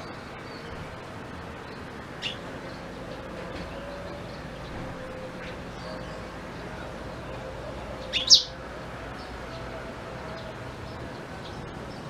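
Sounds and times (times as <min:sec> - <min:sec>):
canary chirping: 0:00.0 - 0:08.6
background noise: 0:00.0 - 0:12.0.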